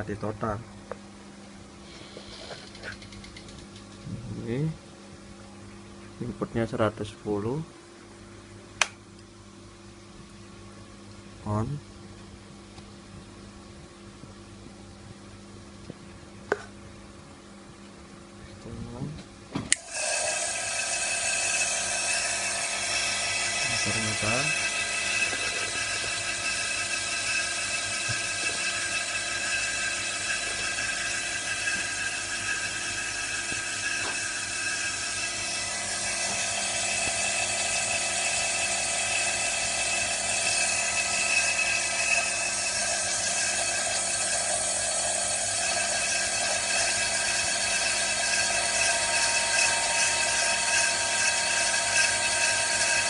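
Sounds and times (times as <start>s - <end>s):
electric motor high whine: 19.7s - 53.0s.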